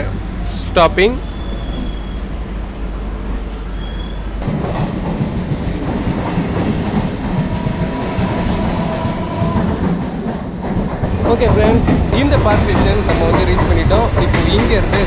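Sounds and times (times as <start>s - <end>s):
faint wheel squeal: 0.0s - 4.4s
electric train on rails: 0.0s - 15.0s.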